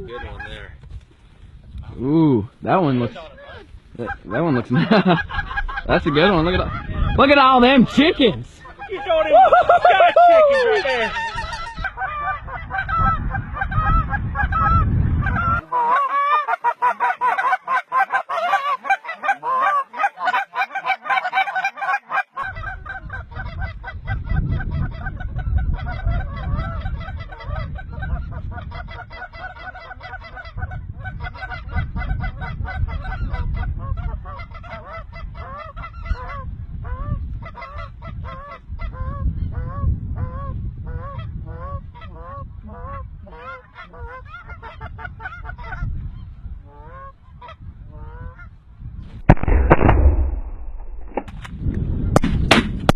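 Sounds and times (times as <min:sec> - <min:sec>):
wind rumbling on microphone: 0:00.0 - 0:15.7, 0:22.4 - 0:52.9
geese honking: 0:05.3 - 0:24.0.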